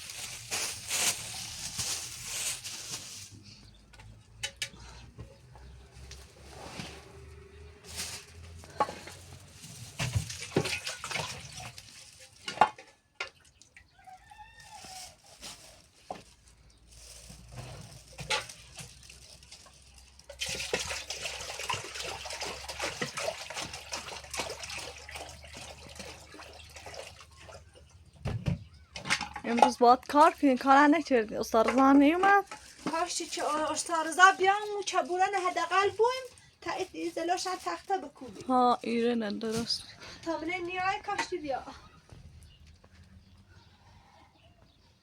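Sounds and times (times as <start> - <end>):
objects being handled clattering: 0.0 - 13.8, 14.8 - 43.0
running water: 20.3 - 27.9.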